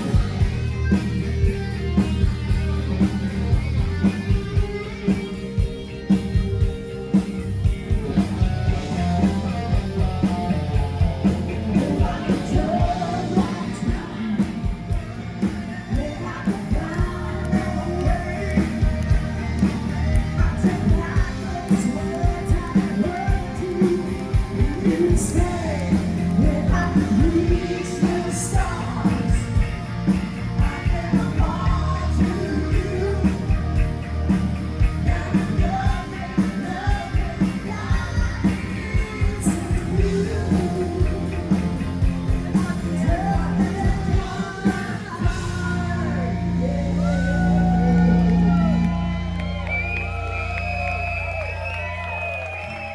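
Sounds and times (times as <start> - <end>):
electric guitar: 0.0 - 52.9
man singing: 9.3 - 48.3.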